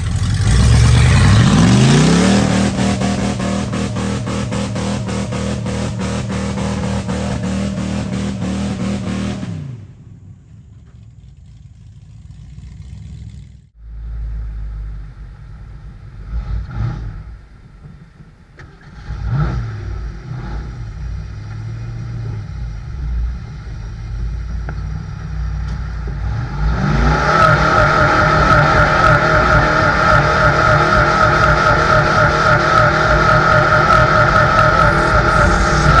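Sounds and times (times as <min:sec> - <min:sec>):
truck engine revving: 0:00.0 - 0:10.4, 0:11.4 - 0:36.0.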